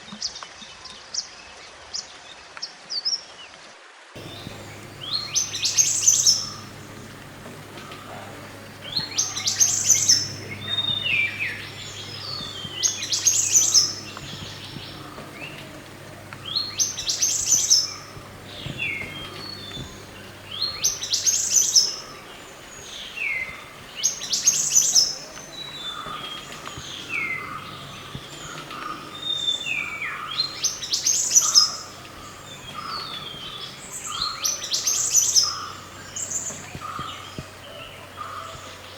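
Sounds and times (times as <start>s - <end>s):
songbird chirping and whistling: 4.2s - 37.5s
faint low hum: 4.2s - 38.9s.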